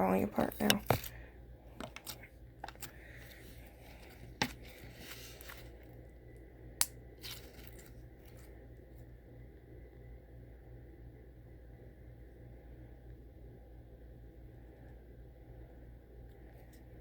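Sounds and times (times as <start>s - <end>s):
slime crackling and squishing: 7.2s - 8.6s.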